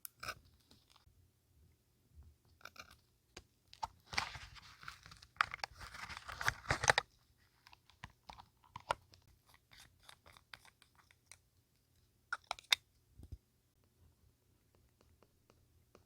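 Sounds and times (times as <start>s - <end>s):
paper crinkling and tearing: 4.0s - 7.0s.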